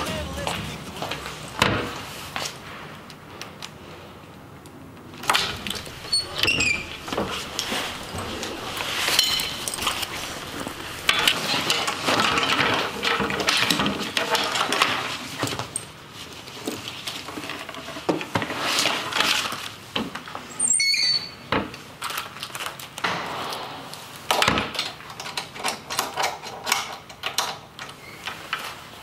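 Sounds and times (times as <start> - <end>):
rummaging in metal locker: 5.2 - 15.8.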